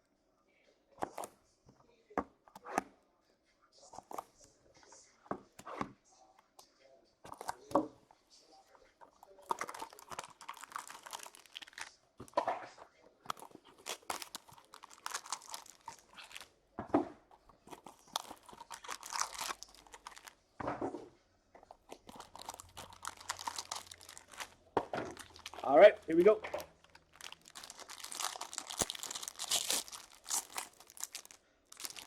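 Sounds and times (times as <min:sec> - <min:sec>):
plastic wrapping crinkling and tearing: 0:09.0 - 0:12.5, 0:13.3 - 0:16.5, 0:17.3 - 0:20.4, 0:21.6 - 0:32.0.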